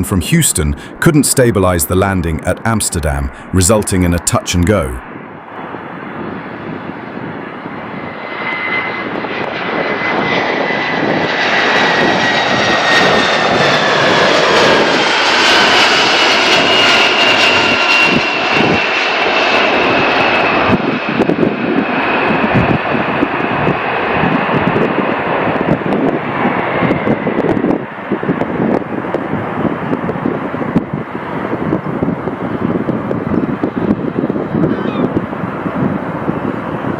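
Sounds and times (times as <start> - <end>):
jet engine whine: 5.0 - 36.9
jet engines roaring: 5.1 - 34.5.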